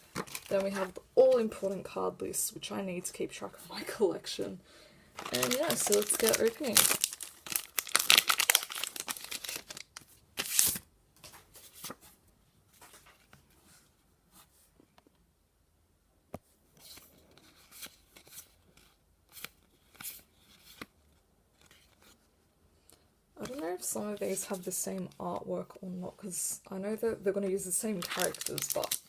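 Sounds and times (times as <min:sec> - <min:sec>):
wrapper crinkling: 0:00.0 - 0:01.4, 0:05.2 - 0:10.8, 0:27.8 - 0:29.0
wrapper tearing open: 0:05.2 - 0:10.8, 0:28.0 - 0:29.0.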